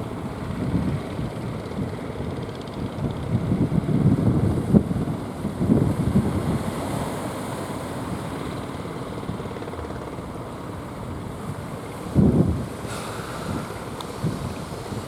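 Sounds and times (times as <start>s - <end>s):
wind buffeting microphone: 0.0s - 8.3s, 10.8s - 15.0s
sea surf rushing: 10.9s - 15.0s.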